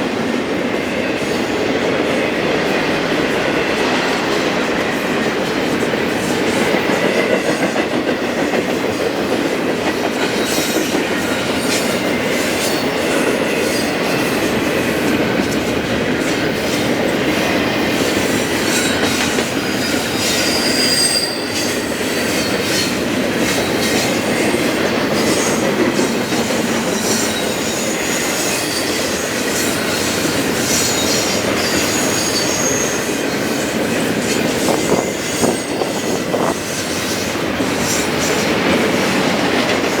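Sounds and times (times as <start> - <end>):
freight train rumbling on rails: 0.0 - 40.0
high-pitched wheel squeals: 20.2 - 21.8, 30.8 - 33.0.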